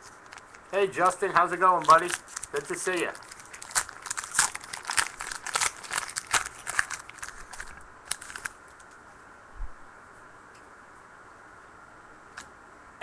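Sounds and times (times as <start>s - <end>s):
wrappers tearing and crinkling: 0.0s - 9.0s.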